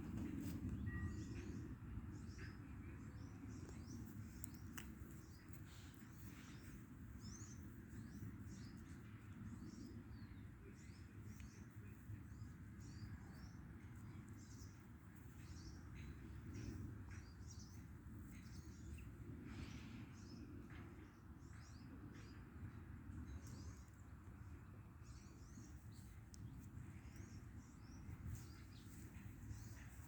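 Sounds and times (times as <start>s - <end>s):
small birds chirping: 2.1s - 24.2s, 25.0s - 30.0s
steady low rumble: 22.5s - 30.0s.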